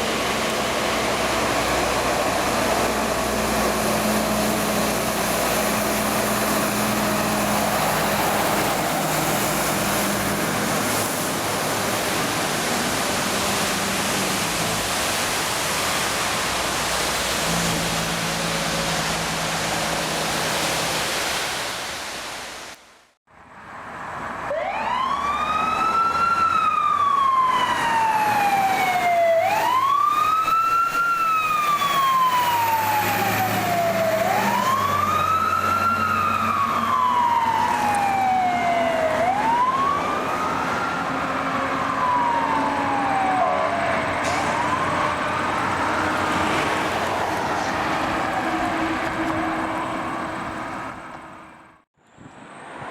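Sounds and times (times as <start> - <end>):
emergency siren wailing: 0.0 - 15.2, 24.3 - 51.8
vehicle engine: 0.0 - 21.3.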